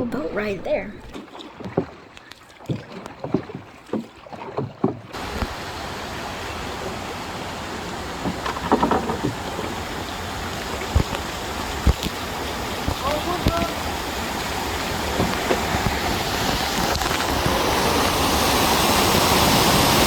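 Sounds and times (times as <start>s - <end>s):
paddle strokes splashing: 0.0s - 20.0s
rushing water: 0.0s - 20.0s
wind: 0.0s - 20.0s
knocks: 8.2s - 10.0s.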